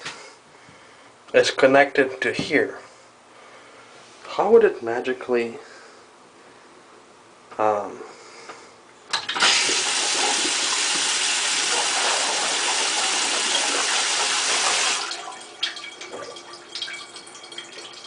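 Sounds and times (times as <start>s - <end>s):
water rushing through plumbing: 9.1s - 18.0s.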